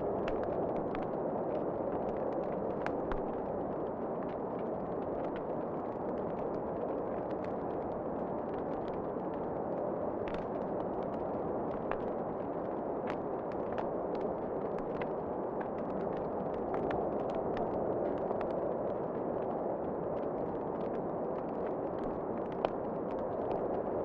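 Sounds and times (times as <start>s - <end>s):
wood fire crackling and popping: 10.2s - 24.0s.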